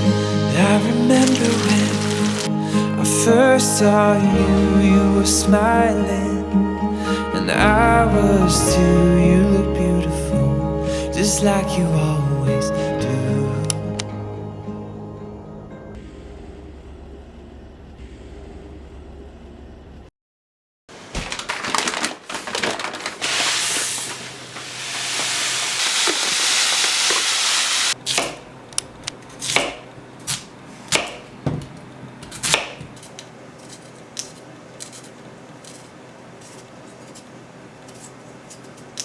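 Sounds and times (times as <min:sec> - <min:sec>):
quiet music: 0:00.0 - 0:16.0
steady hiss: 0:00.8 - 0:02.7, 0:23.2 - 0:28.0.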